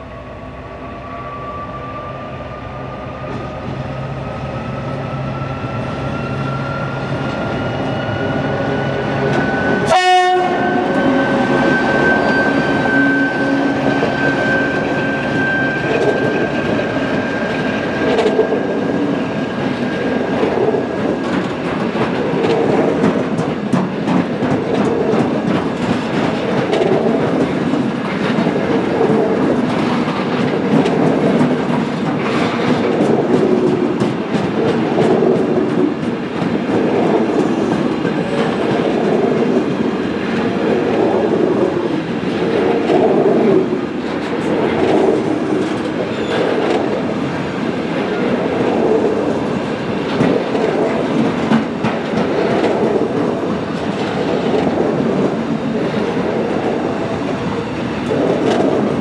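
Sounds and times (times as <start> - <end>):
diesel locomotive engine hum and whine: 0.0 - 59.0
freight wagons rumbling and clacking: 20.4 - 41.6.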